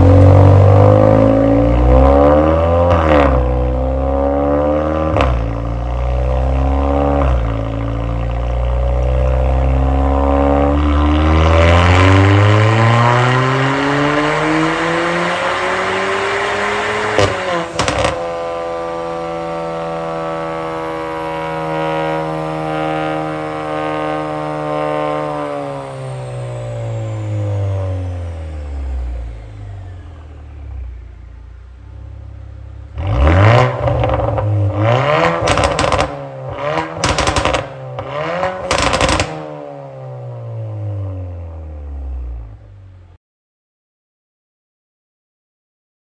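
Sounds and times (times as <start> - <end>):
car engine accelerating: 0.0 - 43.2
exhaust pops and bangs: 17.1 - 18.6, 35.2 - 39.5.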